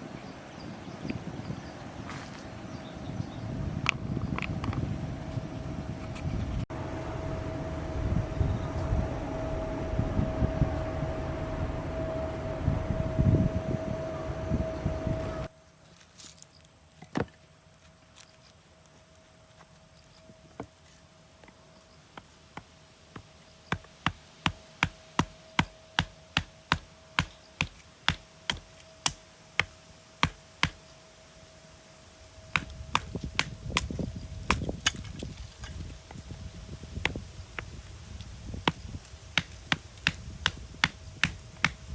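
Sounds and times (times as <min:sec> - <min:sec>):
low rumbling noise: 0:02.6 - 0:15.5
firewood chopping knocks: 0:22.2 - 0:30.9, 0:32.6 - 0:35.2, 0:37.1 - 0:37.7, 0:39.4 - 0:41.9.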